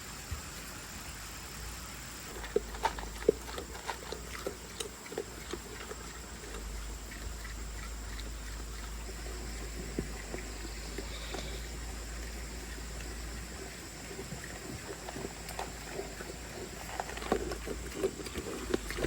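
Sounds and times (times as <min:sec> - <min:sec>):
short animal sounds: 0:04.2 - 0:17.2.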